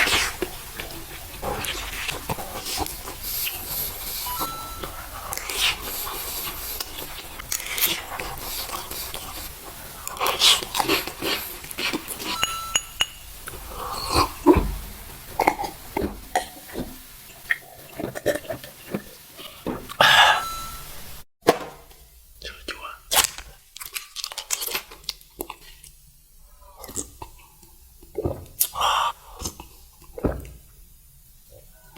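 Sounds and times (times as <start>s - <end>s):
biting and chewing: 0.0s - 12.4s, 23.1s - 25.8s
food clicks and crackles: 0.0s - 20.0s, 22.6s - 26.0s.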